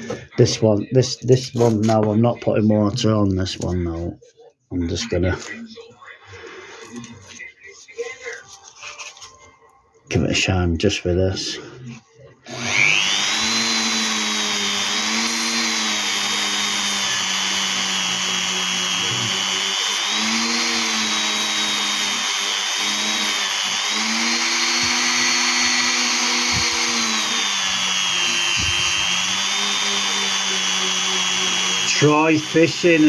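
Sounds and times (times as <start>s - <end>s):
power tool polishing stone: 12.5s - 33.0s.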